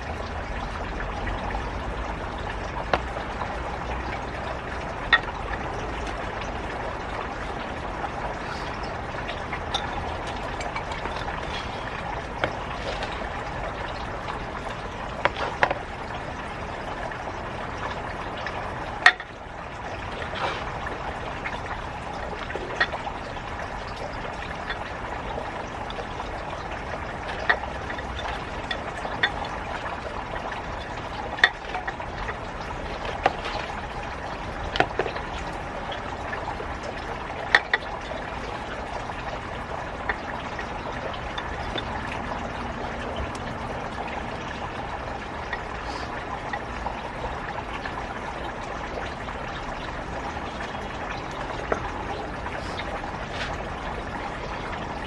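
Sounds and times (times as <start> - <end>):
water running: 0.0 - 55.0.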